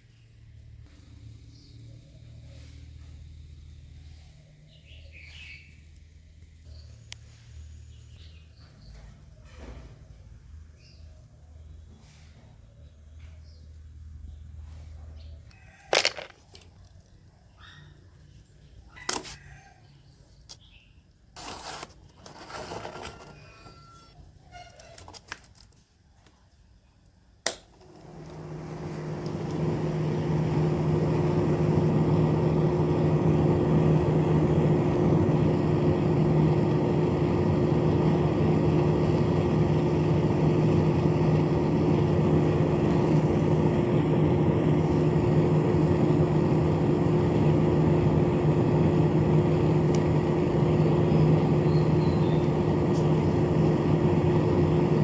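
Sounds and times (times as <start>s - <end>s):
small fan motor humming: 27.4s - 55.0s.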